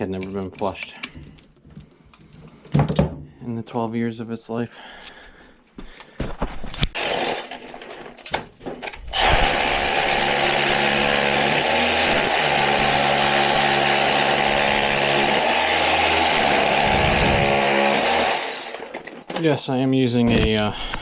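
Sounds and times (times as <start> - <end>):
hammer drill into concrete wall: 6.9 - 8.2, 9.0 - 19.3.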